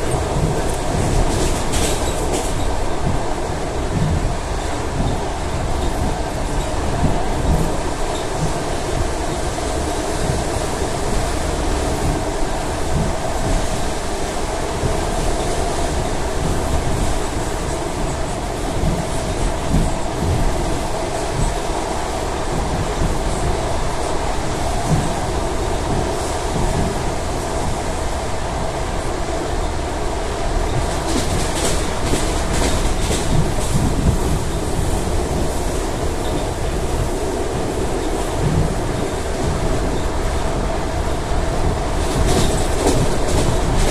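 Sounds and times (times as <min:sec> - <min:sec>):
wheels clattering over rail joints: 0:00.0 - 0:03.2
train wheels rumbling on rails: 0:00.0 - 0:43.9.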